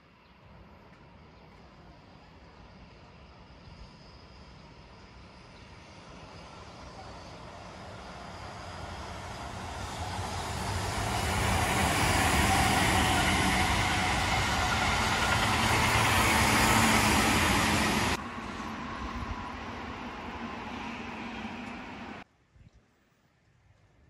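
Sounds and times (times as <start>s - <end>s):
train wheels on rails: 6.2s - 22.2s.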